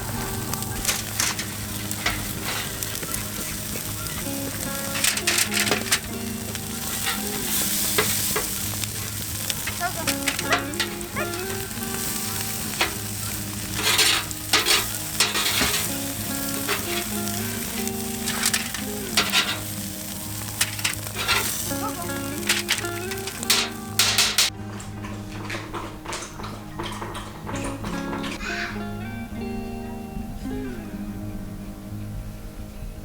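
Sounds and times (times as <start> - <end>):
food sizzling in a pan: 0.0 - 24.5
soft background music: 0.0 - 33.0.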